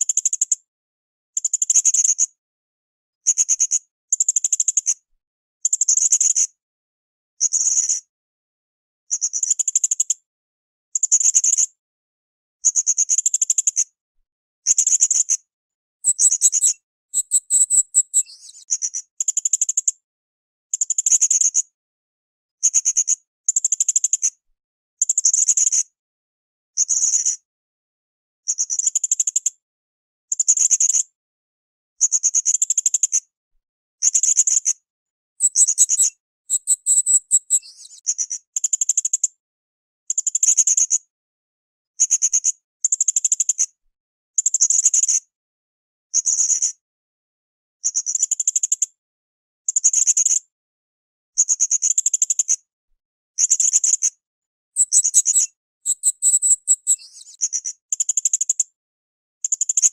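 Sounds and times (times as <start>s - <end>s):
parrot shrill chirps: 35.4s - 37.6s, 54.8s - 57.5s.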